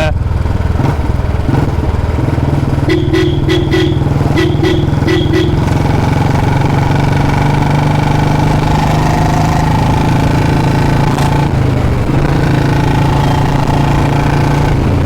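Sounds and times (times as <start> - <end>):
motorcycle engine thumping: 0.2 - 7.4.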